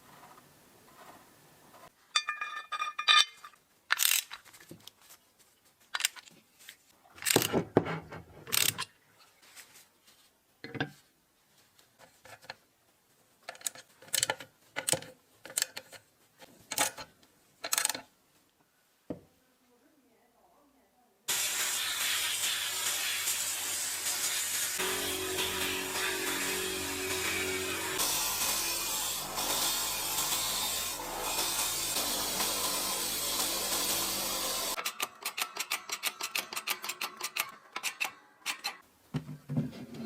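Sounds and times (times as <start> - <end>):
ringing metallic rattle: 2.2 - 3.6
metal parts clinking: 2.2 - 4.5.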